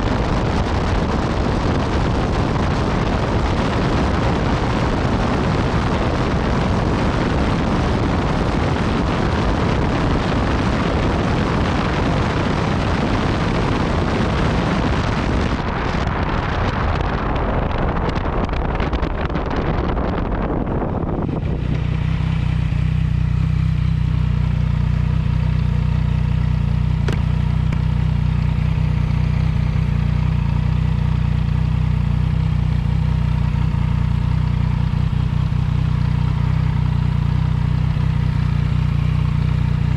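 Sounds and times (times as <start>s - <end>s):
motorcycle engine: 0.0s - 39.9s
wind rush on microphone: 0.0s - 39.9s.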